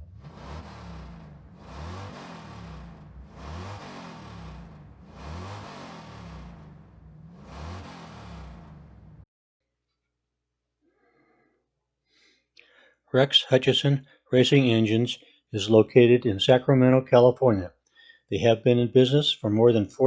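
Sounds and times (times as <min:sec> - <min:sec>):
racing engines running loud: 0:00.0 - 0:09.2.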